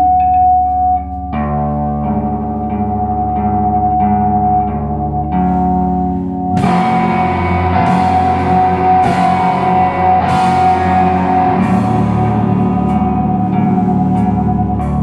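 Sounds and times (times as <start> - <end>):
electric guitars and bass droning: 0.0 - 15.0
cymbal crashes: 6.6 - 14.4
drum kit playing: 6.6 - 15.0.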